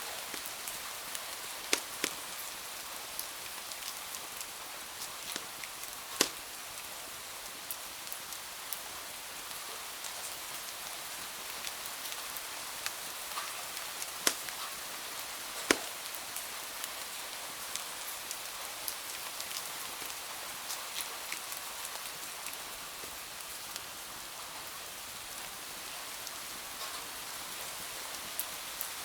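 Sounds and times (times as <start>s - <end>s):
wood fire crackling: 0.0s - 2.6s, 3.2s - 6.7s, 12.8s - 16.4s
steady rain hiss: 0.0s - 29.0s
loud sharp pops of fire: 1.7s - 2.2s, 6.2s - 6.5s, 14.2s - 14.7s, 15.6s - 16.0s.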